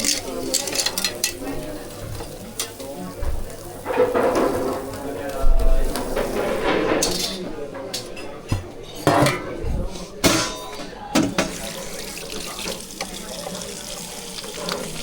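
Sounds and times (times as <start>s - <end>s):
tap water running into sink: 0.0s - 6.4s, 11.2s - 15.0s.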